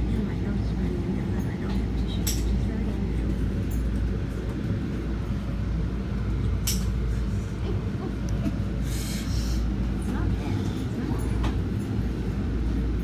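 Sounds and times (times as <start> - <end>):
commuter train rumble: 0.0 - 13.0.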